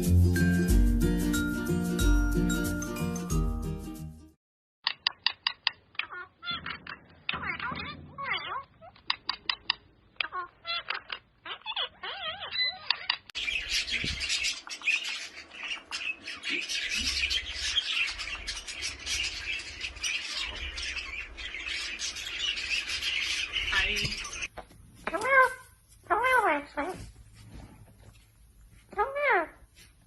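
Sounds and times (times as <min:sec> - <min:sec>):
parrots chirping and squawking: 0:04.9 - 0:27.0, 0:28.9 - 0:29.6
parrot clicks: 0:09.0 - 0:11.2.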